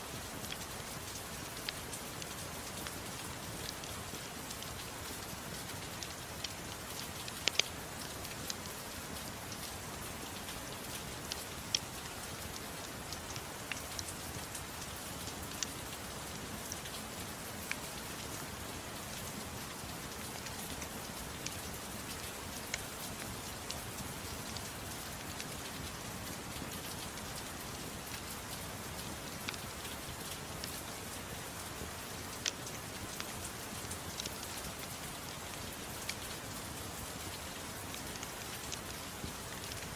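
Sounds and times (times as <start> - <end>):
gentle rain falling: 0.0 - 39.9
wood fire crackling: 31.8 - 34.9.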